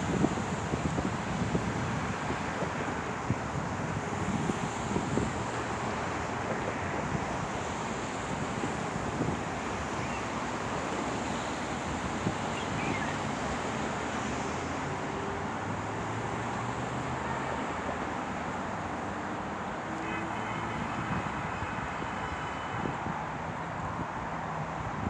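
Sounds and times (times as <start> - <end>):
passing cars: 0.0 - 25.0.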